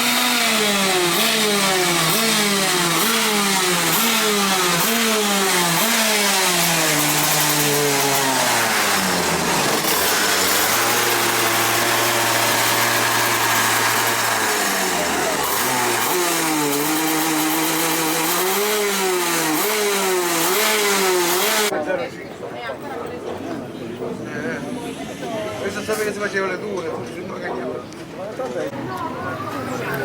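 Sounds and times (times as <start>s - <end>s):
vehicle engine revving: 0.0s - 21.7s.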